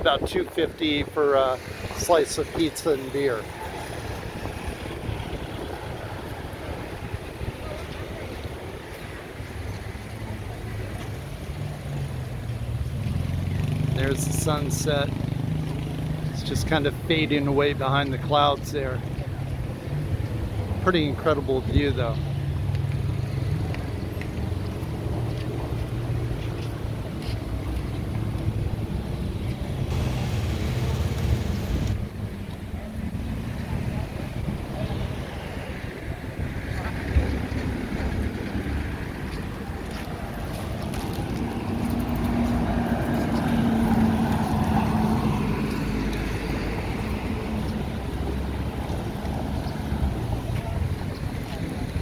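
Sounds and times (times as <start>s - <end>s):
engine passing by: 11.1s - 16.9s, 22.3s - 52.0s
low engine rumble: 28.1s - 35.1s
wind buffeting microphone: 28.2s - 52.0s
outdoor hiss: 29.9s - 32.0s.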